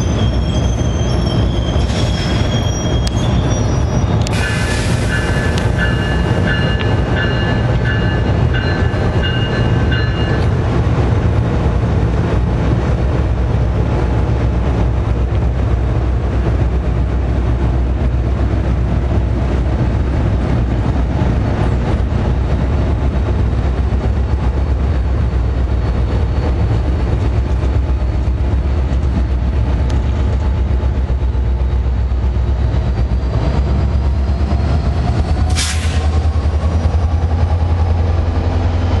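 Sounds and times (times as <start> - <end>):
locomotive engine drone: 0.0 - 39.0
train passing: 0.0 - 39.0.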